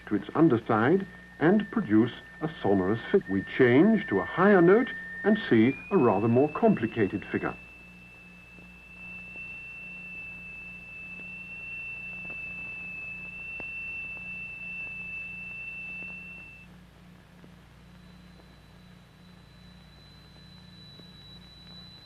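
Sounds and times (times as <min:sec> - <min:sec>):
high-pitched tone: 0:00.0 - 0:16.6
faint higher tone: 0:00.0 - 0:16.7, 0:17.8 - 0:22.0.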